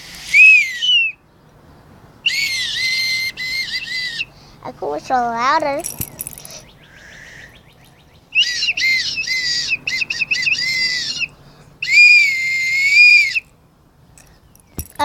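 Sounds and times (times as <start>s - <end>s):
child whistling shrilly: 0.2s - 1.2s, 2.3s - 4.3s, 8.4s - 13.4s.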